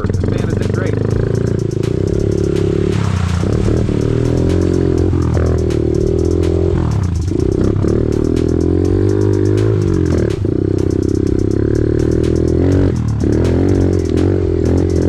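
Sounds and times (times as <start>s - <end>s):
small motorbike engine revving: 0.0s - 15.0s.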